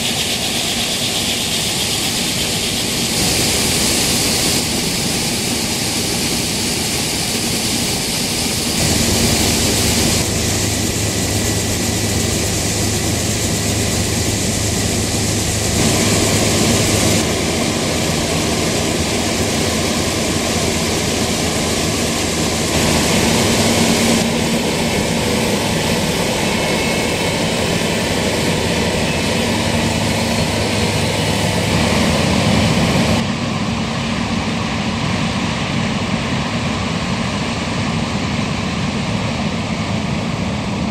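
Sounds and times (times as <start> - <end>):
broad rushing noise: 0.0 - 37.7
diesel engines running: 8.8 - 33.2.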